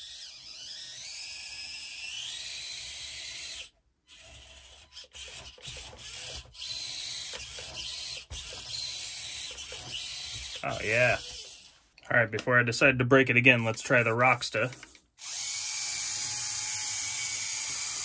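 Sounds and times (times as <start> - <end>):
rc car motor and gears whining: 0.0 - 11.9, 13.5 - 18.0.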